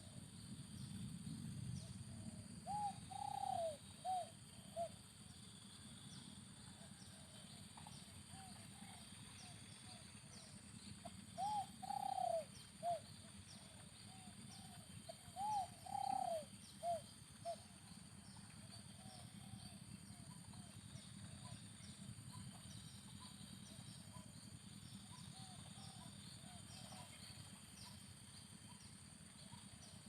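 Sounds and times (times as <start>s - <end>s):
dove cooing: 2.1s - 5.0s, 6.8s - 10.0s, 11.0s - 17.8s, 18.6s - 20.8s, 25.1s - 27.3s.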